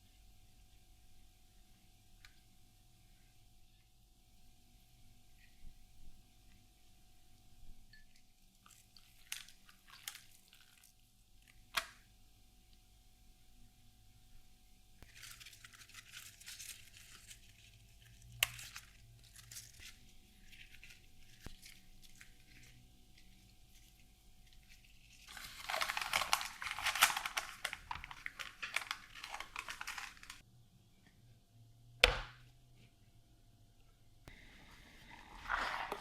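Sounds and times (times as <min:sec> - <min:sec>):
crinkling and rustling: 0:15.0 - 0:30.4, 0:34.6 - 0:36.0.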